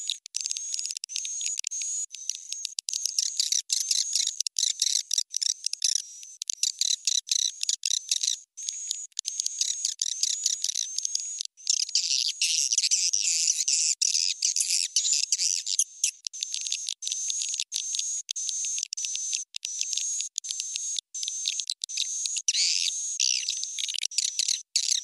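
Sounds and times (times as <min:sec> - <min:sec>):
high-pitched bird chirps and trills: 0:06.6 - 0:25.0.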